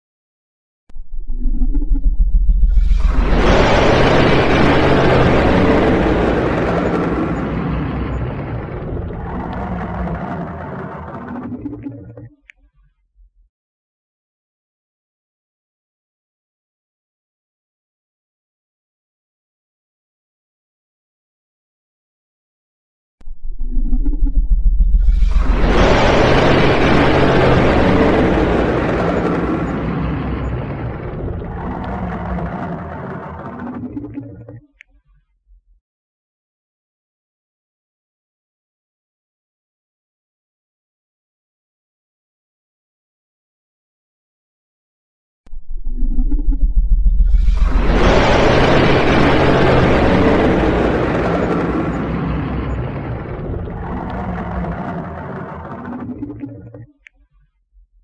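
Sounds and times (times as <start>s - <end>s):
dragon growling rumble: 2.5s - 12.2s, 23.8s - 34.6s, 46.2s - 57.0s
dragon roar: 25.4s - 33.8s, 53.1s - 56.3s.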